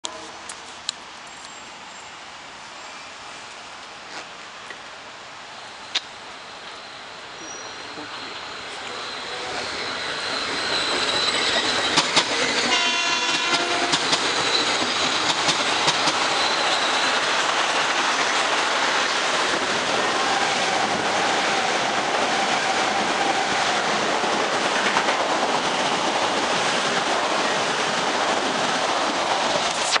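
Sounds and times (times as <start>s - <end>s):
train rushing past: 5.1s - 30.0s
train horn blast: 12.7s - 14.1s.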